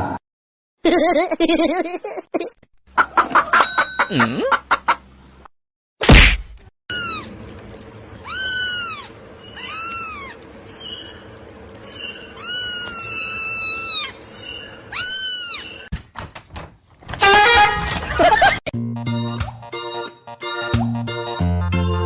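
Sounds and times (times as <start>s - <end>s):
cat meowing: 6.9s - 7.4s, 8.2s - 10.4s, 11.9s - 15.9s.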